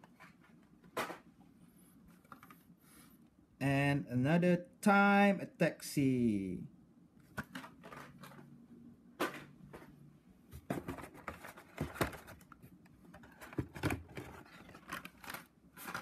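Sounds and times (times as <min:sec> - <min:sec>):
plastic packaging crackling: 0:14.1 - 0:16.0.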